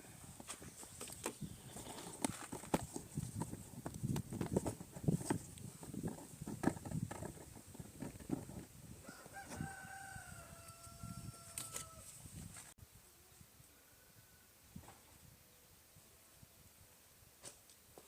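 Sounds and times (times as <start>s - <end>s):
rooster crowing: 9.0s - 12.1s.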